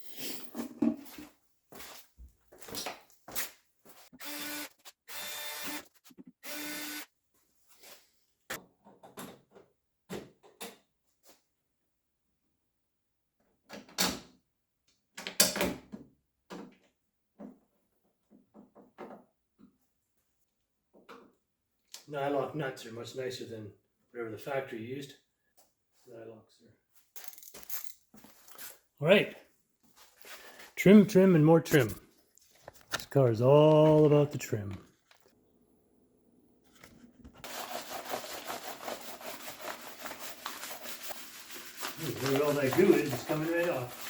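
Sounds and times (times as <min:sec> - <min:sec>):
cordless driver whirring: 0:04.2 - 0:07.0.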